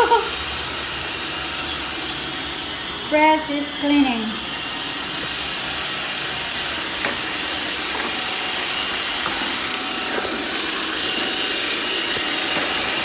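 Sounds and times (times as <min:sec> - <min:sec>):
robot vacuum whirring: 0:00.0 - 0:13.0.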